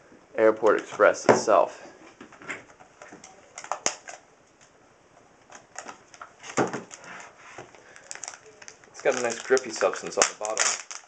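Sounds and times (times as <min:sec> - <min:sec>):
shrink wrap crinkling: 0:05.5 - 0:11.0.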